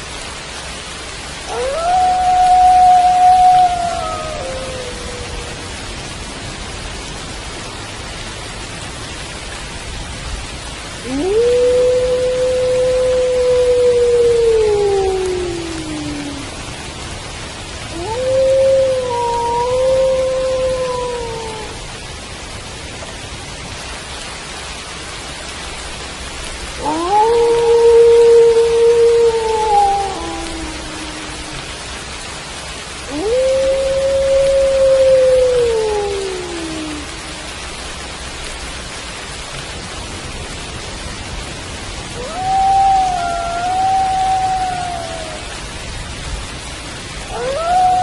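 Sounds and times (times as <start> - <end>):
steady rain: 0.0 - 48.0
wolf howling: 1.5 - 5.9, 11.0 - 16.6, 17.9 - 21.8, 26.7 - 32.0, 33.0 - 37.7, 42.1 - 45.6, 47.2 - 48.0.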